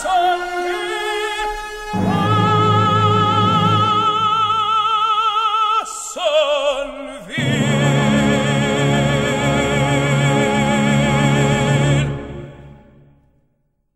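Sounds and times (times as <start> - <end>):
orchestra playing: 0.0 - 5.2, 7.3 - 13.2
opera singing: 0.0 - 12.7.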